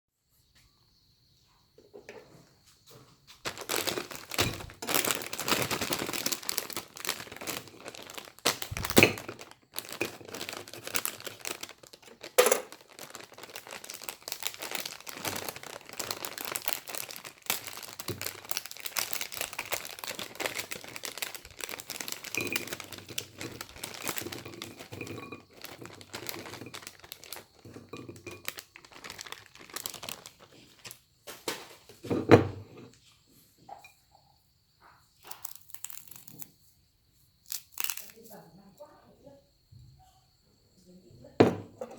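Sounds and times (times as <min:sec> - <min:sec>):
snacks crunching and crinkling: 0:03.5 - 0:31.6, 0:35.2 - 0:36.6, 0:37.4 - 0:38.4.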